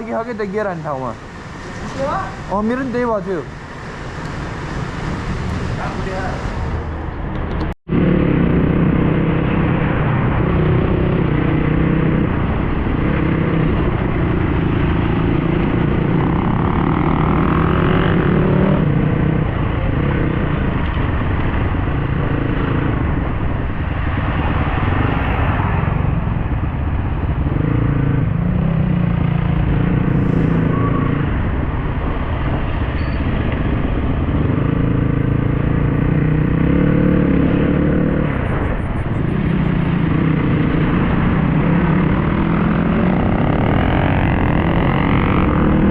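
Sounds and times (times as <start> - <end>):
wind and road noise: 0.0 - 45.9
dirt bike engine revving: 34.2 - 38.4, 39.2 - 45.9.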